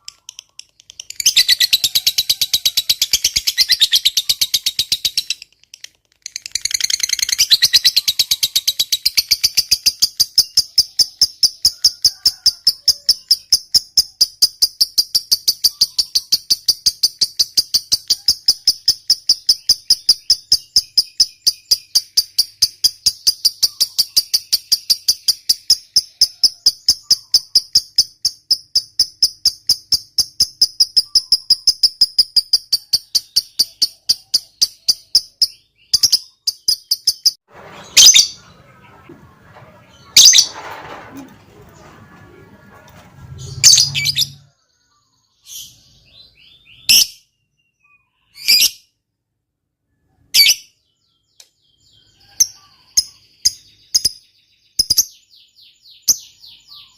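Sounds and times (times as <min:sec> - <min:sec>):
lovebird chattering: 0:00.0 - 0:39.2.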